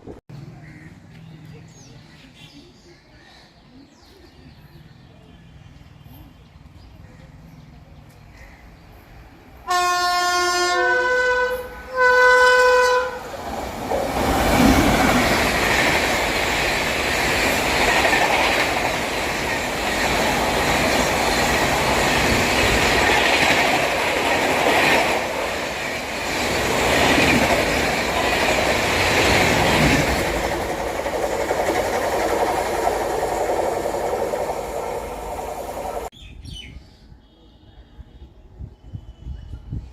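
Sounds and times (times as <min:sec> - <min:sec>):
train horn blasts: 0:09.6 - 0:13.5
train wheels rushing on rail: 0:12.4 - 0:36.1.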